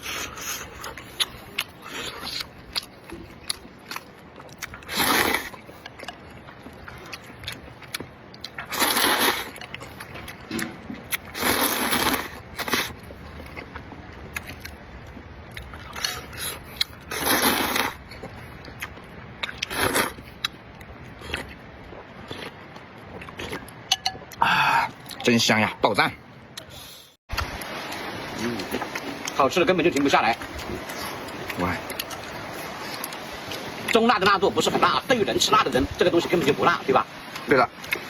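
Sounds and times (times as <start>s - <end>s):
person chewing: 0.0s - 25.2s, 30.4s - 34.0s
person slurping noodles: 4.7s - 5.6s, 8.6s - 9.6s, 11.2s - 13.0s, 16.0s - 18.0s, 19.6s - 20.2s.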